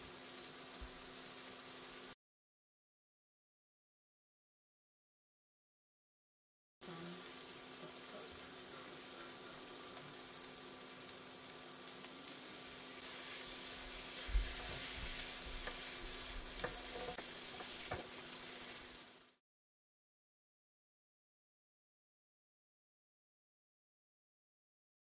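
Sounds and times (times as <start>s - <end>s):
vegetables sizzling in a pan: 0.0s - 2.2s, 6.8s - 19.4s
wooden spatula knocking a pan: 14.2s - 18.2s.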